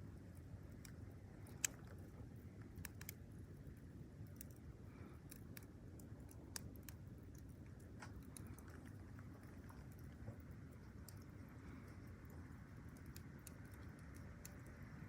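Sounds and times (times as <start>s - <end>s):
faint low hiss: 0.0s - 15.0s
wood fire crackling: 0.0s - 15.0s.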